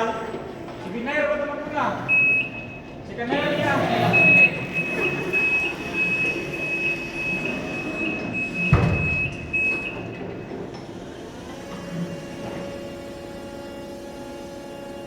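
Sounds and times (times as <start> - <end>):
truck rumble: 0.0 - 15.0.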